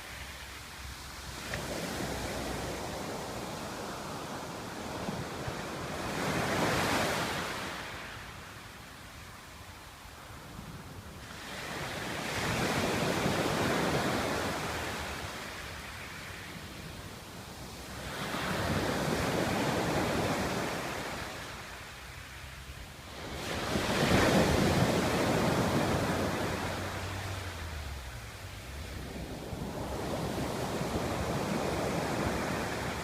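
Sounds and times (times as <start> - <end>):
waves breaking on pebble beach: 23.1 - 28.2.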